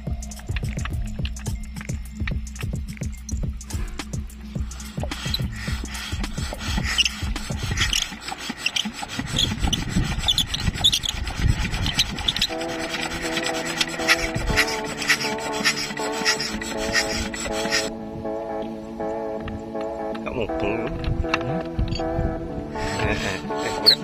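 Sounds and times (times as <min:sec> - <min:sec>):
steady musical tone: 0:00.0 - 0:24.0
rough rubbing and scraping by hand: 0:03.6 - 0:17.9, 0:22.7 - 0:24.0.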